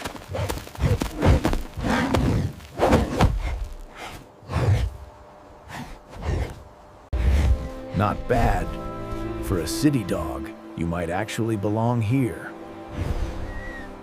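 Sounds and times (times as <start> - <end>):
heavy paws pounding ground: 0.0 - 5.0.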